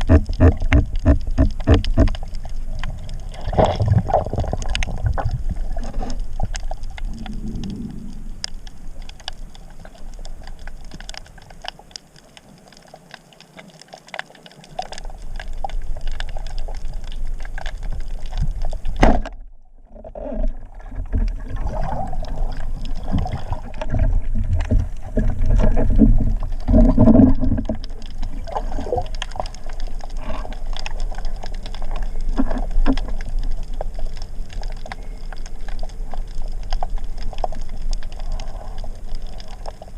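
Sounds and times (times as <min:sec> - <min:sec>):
sharp underwater clicks: 0:00.0 - 0:05.3
water rushing underwater: 0:00.0 - 0:39.9.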